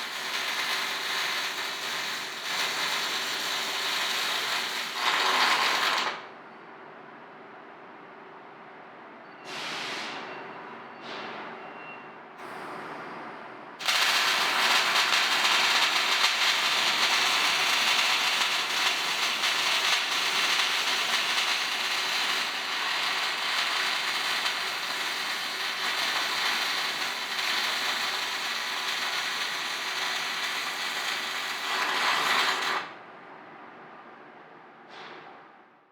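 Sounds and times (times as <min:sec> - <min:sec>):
arc welding crackling hiss: 0:00.0 - 0:06.2, 0:13.8 - 0:32.9.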